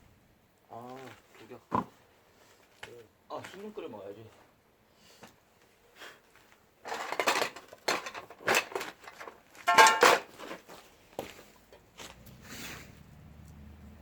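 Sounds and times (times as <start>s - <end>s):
dishes and utensils clattering: 6.9s - 10.3s
ringing dish clink: 9.7s - 10.2s.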